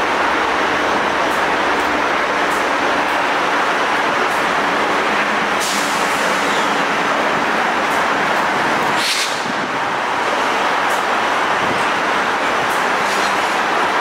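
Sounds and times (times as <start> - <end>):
train rolling by: 0.0 - 14.0
brief hissing: 9.0 - 9.5.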